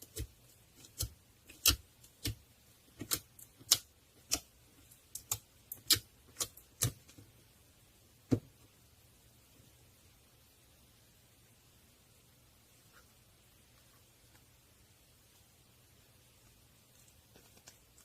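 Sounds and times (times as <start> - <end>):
sharp irregular clicks and taps: 0.1 - 2.4, 3.0 - 7.2.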